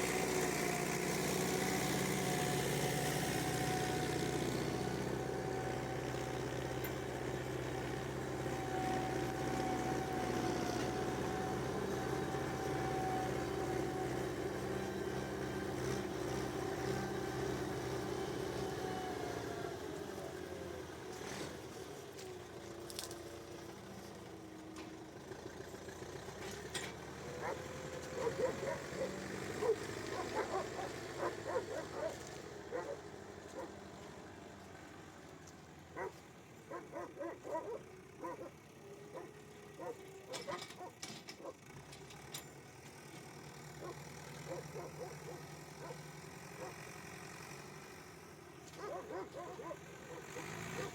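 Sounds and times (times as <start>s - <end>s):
tractor engine running: 21.8s - 50.9s
dog barking: 27.4s - 27.6s, 28.2s - 33.0s, 36.0s - 38.5s, 39.1s - 41.6s, 43.8s - 46.0s, 46.6s - 46.8s, 48.8s - 50.9s.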